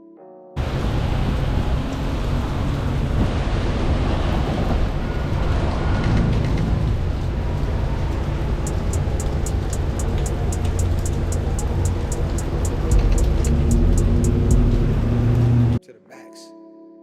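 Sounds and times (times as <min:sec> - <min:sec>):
rain hiss: 0:00.6 - 0:04.6, 0:07.2 - 0:15.8
street noise: 0:00.6 - 0:15.8
quick light ticks: 0:08.6 - 0:14.8.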